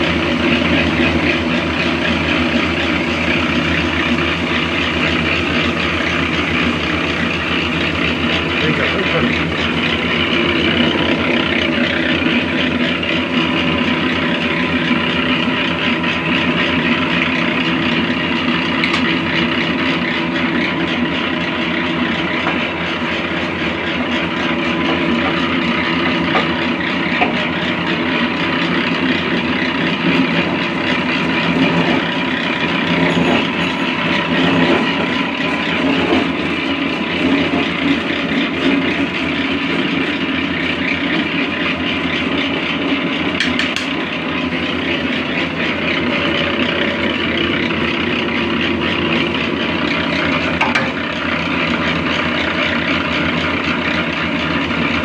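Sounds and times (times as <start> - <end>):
machine motor humming: 0.0 - 55.0.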